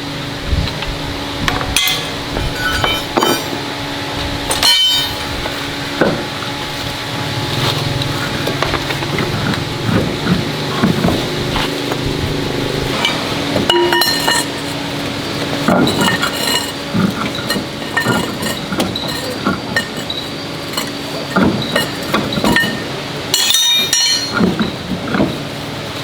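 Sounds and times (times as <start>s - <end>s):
metal tools clinking: 1.5s - 3.7s, 4.4s - 5.7s, 12.8s - 24.8s
metal scrape: 1.8s - 3.6s, 4.5s - 5.7s, 6.7s - 22.8s.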